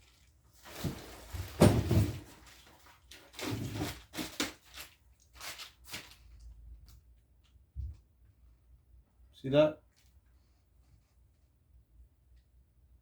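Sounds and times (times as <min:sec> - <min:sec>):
objects knocking and rustling: 0:00.6 - 0:04.9.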